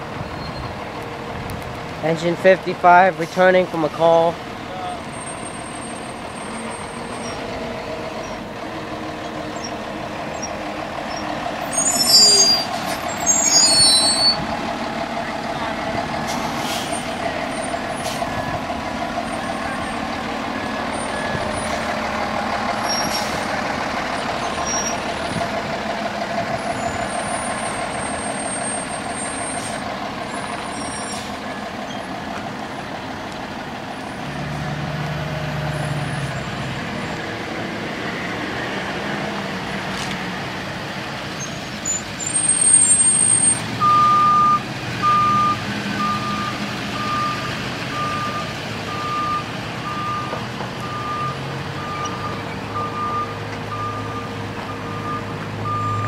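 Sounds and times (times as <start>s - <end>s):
diesel engine running: 0.0s - 56.0s
reversing alarm beeping: 42.2s - 56.0s.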